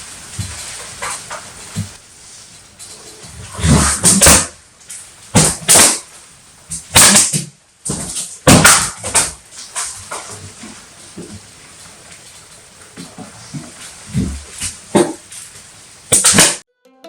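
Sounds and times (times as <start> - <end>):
whip cracking: 3.6 - 4.5, 5.3 - 6.1, 6.9 - 7.5, 8.4 - 9.9, 16.1 - 16.6.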